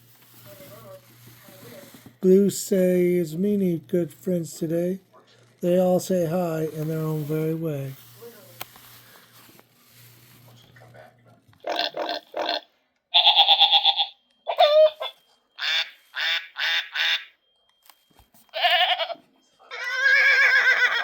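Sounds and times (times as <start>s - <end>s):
farm animal calls: 11.6s - 17.4s, 18.5s - 21.0s.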